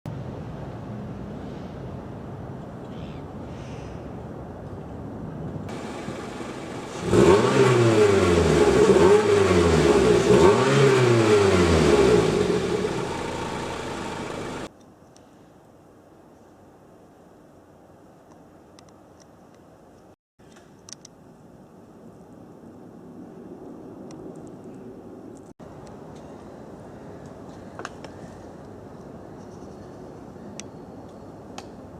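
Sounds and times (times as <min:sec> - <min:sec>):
car engine idling: 0:05.7 - 0:14.7
car engine revving: 0:05.7 - 0:14.7.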